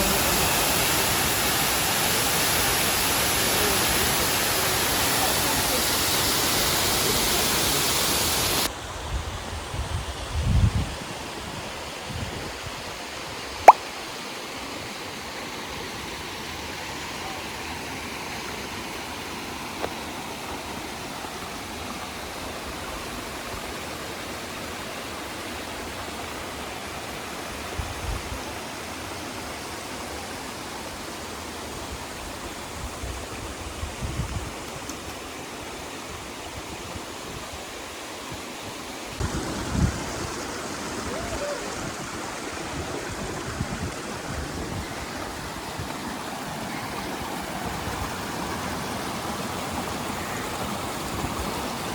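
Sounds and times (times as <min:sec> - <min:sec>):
waterfall rushing: 0:00.0 - 0:08.7, 0:38.5 - 0:51.9.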